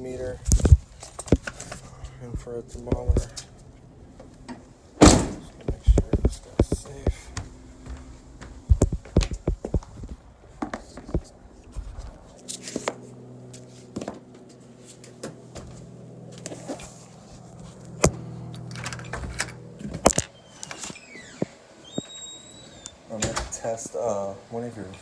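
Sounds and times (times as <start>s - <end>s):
steady low hum: 0.0s - 25.0s
knocks and clatter of gear: 0.2s - 3.5s, 4.4s - 7.5s, 8.6s - 11.3s, 17.8s - 21.0s.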